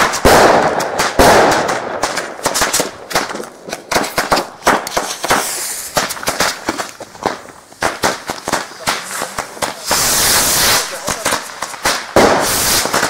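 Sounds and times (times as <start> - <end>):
firecrackers banging: 0.0 - 13.0
loud blast: 7.8 - 11.4, 12.1 - 13.0.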